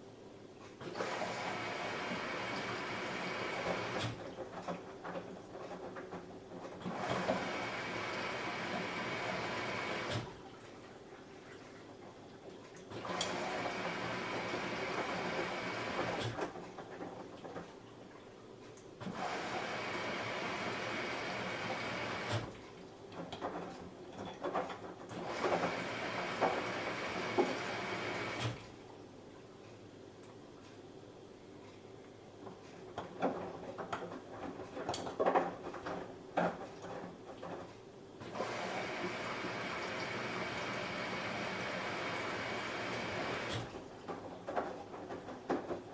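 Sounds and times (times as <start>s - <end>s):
washing machine rushing noise: 0.8s - 12.2s, 12.9s - 17.8s, 19.0s - 22.6s, 23.2s - 28.6s, 38.2s - 45.9s.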